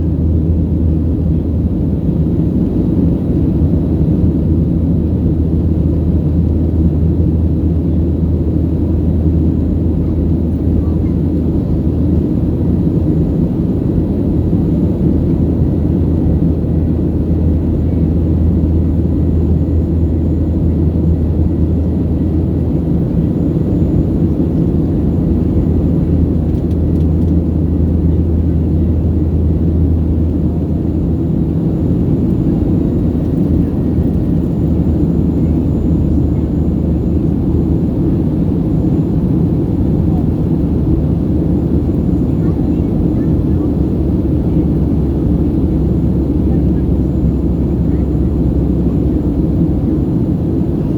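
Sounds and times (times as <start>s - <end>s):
jet engine rumble in cabin: 0.0s - 50.9s.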